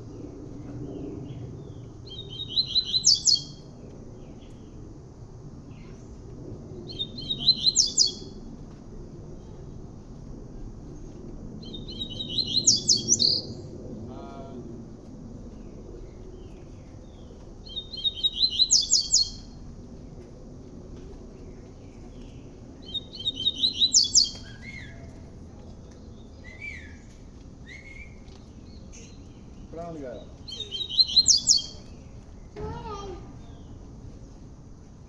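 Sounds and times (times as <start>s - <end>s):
faint bird chirps: 26.4s - 33.8s.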